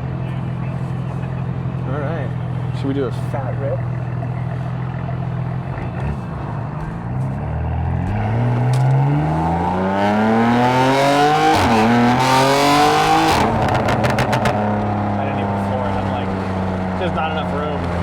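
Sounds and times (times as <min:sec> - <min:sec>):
car engine at full throttle: 0:00.0 - 0:18.0
exhaust pops: 0:05.7 - 0:09.0, 0:13.3 - 0:18.0.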